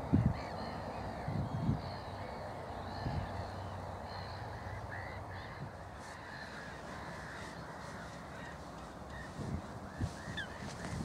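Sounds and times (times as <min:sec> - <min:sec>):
flock of birds calling: 0:00.0 - 0:11.0.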